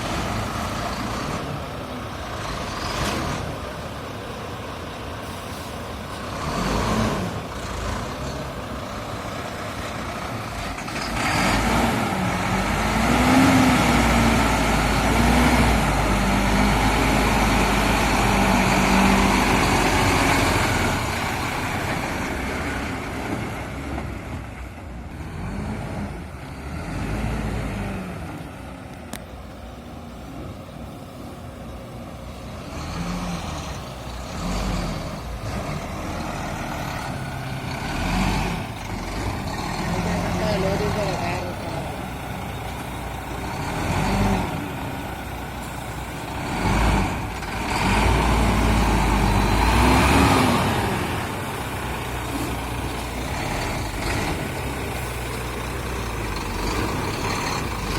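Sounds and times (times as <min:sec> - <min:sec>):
truck engine revving: 0:00.0 - 0:57.9.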